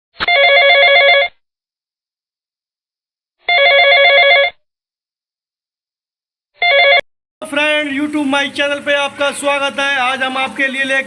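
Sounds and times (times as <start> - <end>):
electronic telephone ringing: 0.2 - 1.4, 3.4 - 4.6, 6.6 - 7.0.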